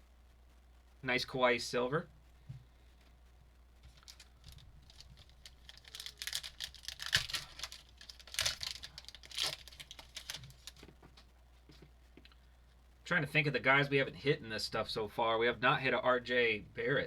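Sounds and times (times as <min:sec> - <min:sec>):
foil wrapper tearing and crinkling: 0:03.9 - 0:10.8.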